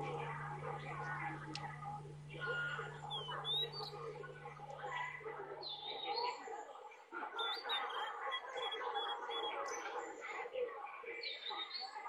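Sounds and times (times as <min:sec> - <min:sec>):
small birds chirping: 0:00.0 - 0:06.5, 0:07.2 - 0:10.2
faint chatter of voices: 0:00.0 - 0:12.0.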